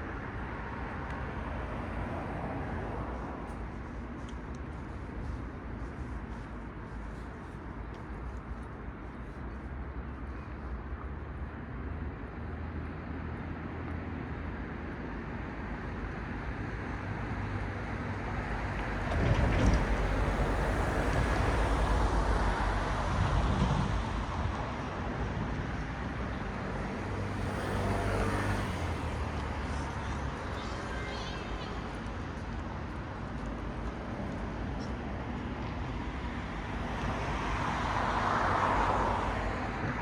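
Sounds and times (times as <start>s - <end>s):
cars passing on a road: 0.0s - 40.0s.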